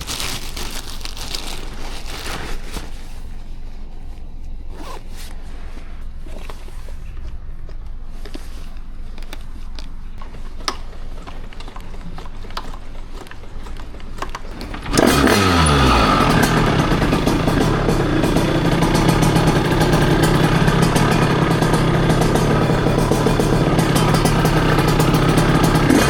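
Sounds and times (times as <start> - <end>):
two-stroke engine starting and idling: 10.7 - 26.0.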